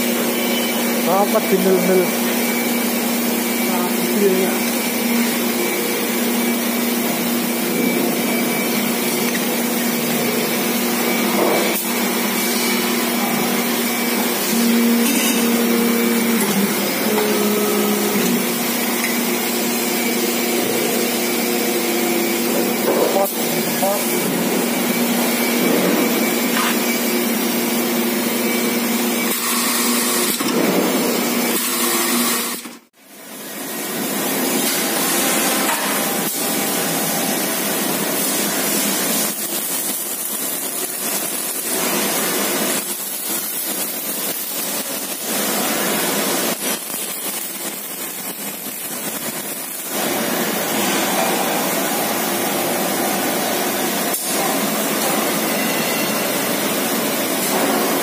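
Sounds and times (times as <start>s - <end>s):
factory machinery and power tools: 0.0s - 58.0s.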